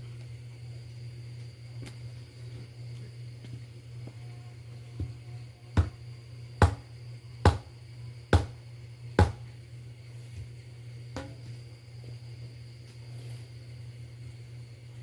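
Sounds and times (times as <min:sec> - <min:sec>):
steady low hum: 0:00.0 - 0:15.0
sharp knocks on wood: 0:06.6 - 0:06.8, 0:07.5 - 0:07.7, 0:08.4 - 0:08.6, 0:09.2 - 0:09.4.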